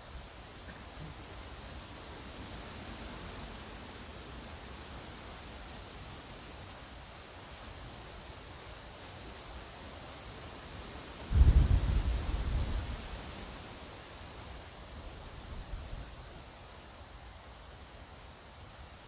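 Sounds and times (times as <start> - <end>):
gentle wind hiss: 0.0 - 19.0
wind rumble on microphone: 11.3 - 13.6, 15.2 - 16.3.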